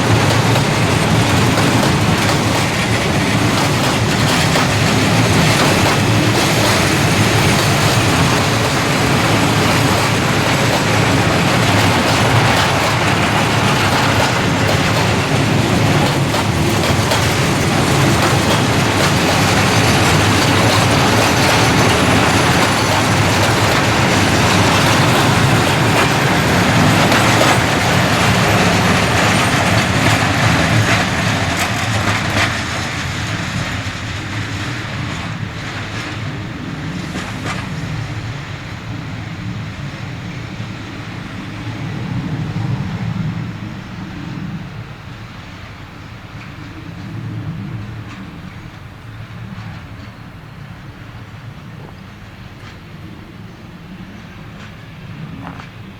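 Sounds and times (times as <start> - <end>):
wheels clattering over rail joints: 0.0 - 41.3
freight train rumbling past: 0.0 - 55.9.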